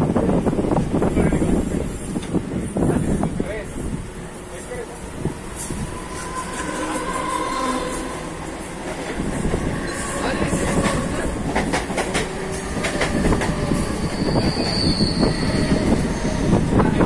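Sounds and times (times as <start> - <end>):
train wheels rattling on rails: 0.0 - 17.0
brief high squeal: 14.0 - 16.4.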